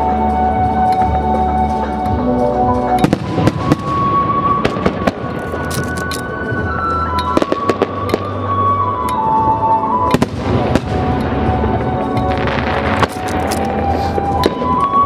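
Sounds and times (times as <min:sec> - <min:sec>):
music on loudspeakers: 0:00.0 - 0:15.0.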